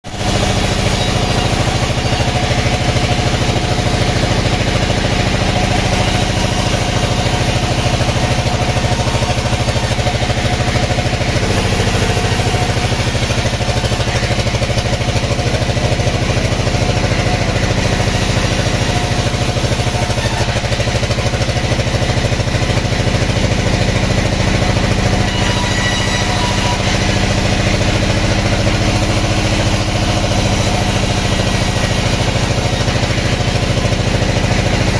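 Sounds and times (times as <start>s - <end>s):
sawmill machinery droning: 0.0s - 34.9s.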